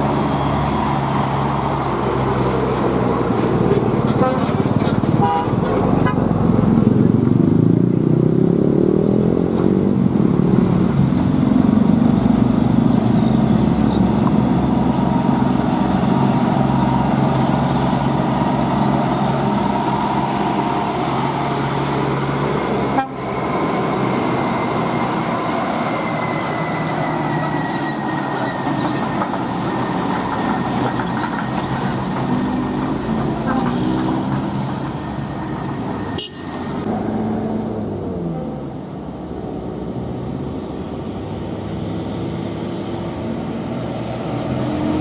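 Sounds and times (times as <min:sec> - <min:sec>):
diesel trucks driving past: 0:00.0 - 0:45.0
long truck horn tones: 0:04.1 - 0:06.4, 0:22.9 - 0:23.4, 0:36.2 - 0:36.6.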